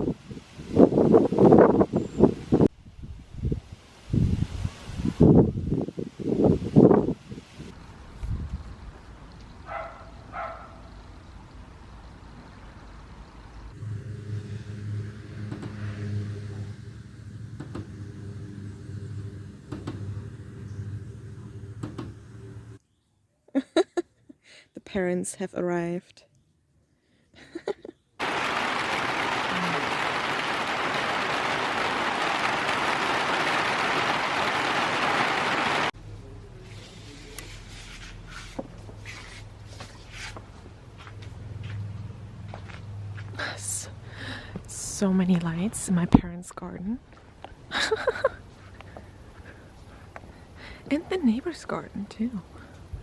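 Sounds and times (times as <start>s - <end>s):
faint outdoor background: 0.0s - 33.8s, 35.9s - 53.0s
dense hiss of water: 3.7s - 5.5s, 28.2s - 35.9s
car engine humming: 13.7s - 22.8s.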